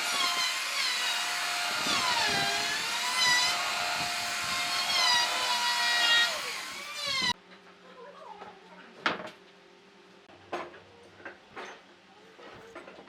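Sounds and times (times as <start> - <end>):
power tool cutting wood: 0.0 - 7.4.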